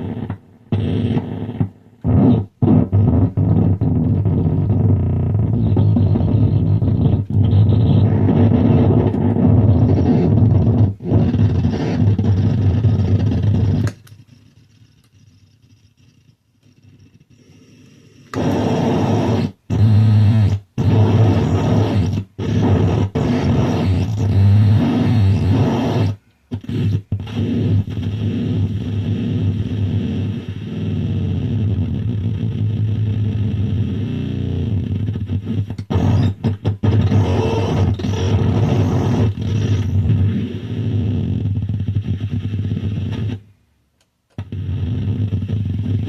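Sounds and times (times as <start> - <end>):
harsh electronic noise music: 2.1 - 13.9, 18.4 - 28.8, 33.8 - 41.0.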